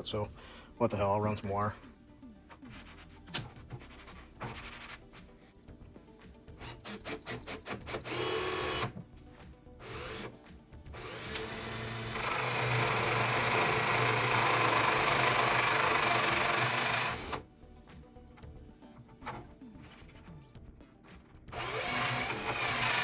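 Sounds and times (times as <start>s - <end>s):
power drill running: 6.6s - 8.9s, 9.8s - 10.3s, 11.0s - 17.4s, 21.5s - 23.0s.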